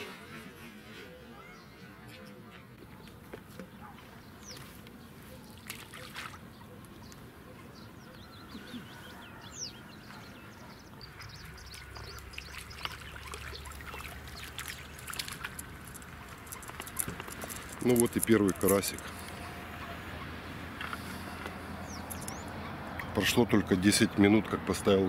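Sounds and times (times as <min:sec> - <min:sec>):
small birds chirping: 0:01.1 - 0:25.0
water trickling and lapping: 0:03.6 - 0:07.6, 0:10.0 - 0:20.2, 0:20.8 - 0:24.9.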